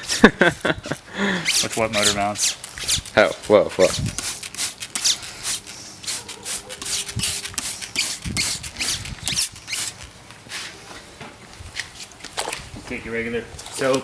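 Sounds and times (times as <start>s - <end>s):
short hissing strokes: 1.4s - 3.1s, 3.8s - 10.8s.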